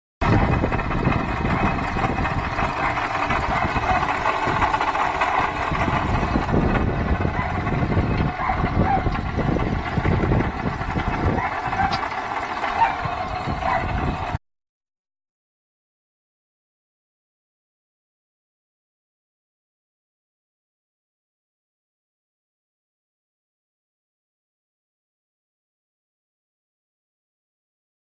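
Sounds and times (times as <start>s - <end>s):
car engine running: 0.2s - 14.4s
worn water pump noise: 0.2s - 14.4s.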